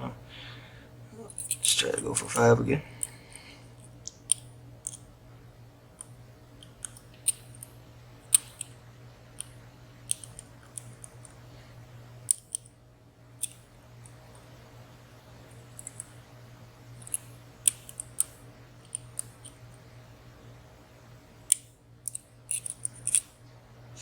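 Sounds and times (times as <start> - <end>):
lock pick clicking in padlock: 21.5 - 23.3.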